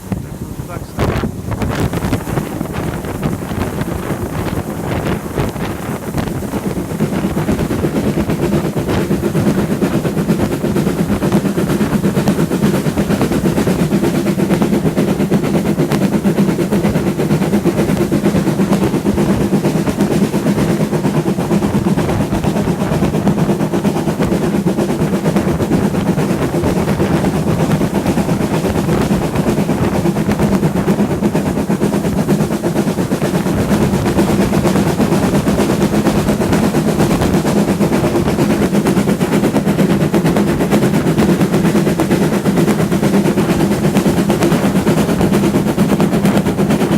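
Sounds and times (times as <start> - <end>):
rapid rhythmic beating: 0.0 - 46.9
steam train rumbling: 0.0 - 46.9.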